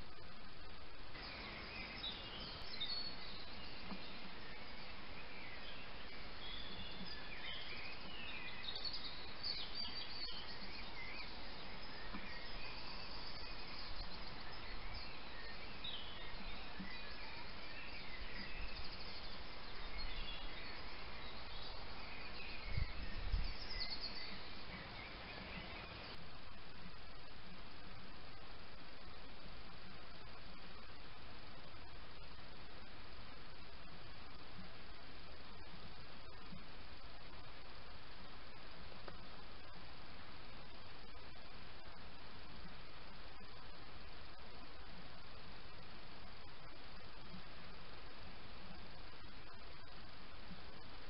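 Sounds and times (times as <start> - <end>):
steady hiss: 0.0 - 51.0
birds chirping and singing: 1.2 - 26.2.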